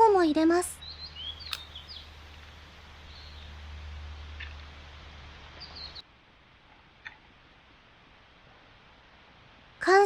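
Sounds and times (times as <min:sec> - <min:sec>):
sharp click: 0:01.4 - 0:02.5.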